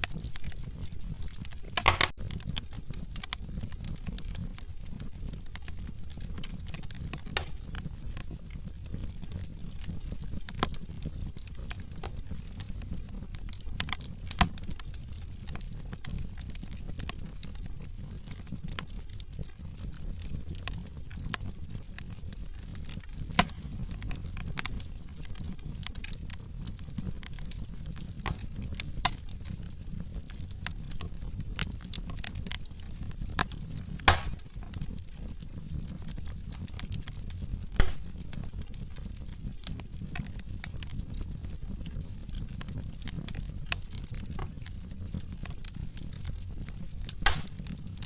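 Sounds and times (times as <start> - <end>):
fire rushing: 0.0 - 14.1, 36.4 - 40.5, 45.3 - 48.0
logs crackling in fire: 0.0 - 48.0
loud fire pops: 0.0 - 48.0.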